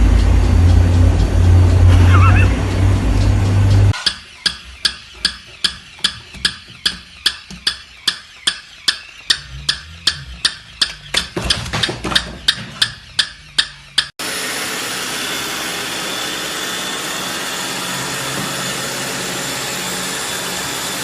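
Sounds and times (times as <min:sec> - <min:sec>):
steady ticking clicks: 0:00.0 - 0:14.2.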